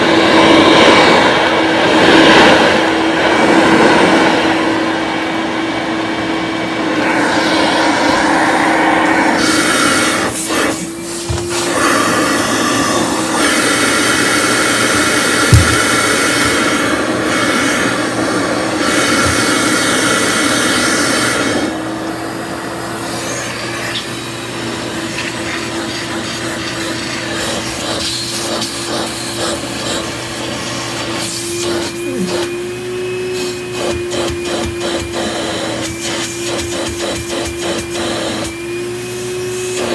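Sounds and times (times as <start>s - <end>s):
upright vacuum running: 0.0s - 39.9s
sharp thump: 15.5s - 16.0s.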